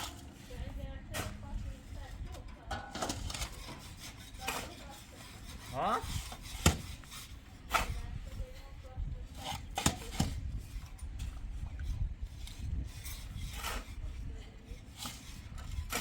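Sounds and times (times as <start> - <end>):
sharp knocks and clatters: 6.4 - 7.1.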